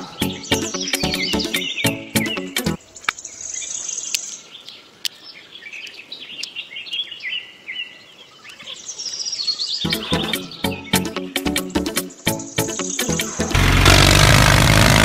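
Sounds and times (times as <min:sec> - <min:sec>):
music with a beat: 0:00.0 - 0:02.8, 0:09.9 - 0:13.6
birds chirping: 0:00.0 - 0:13.3.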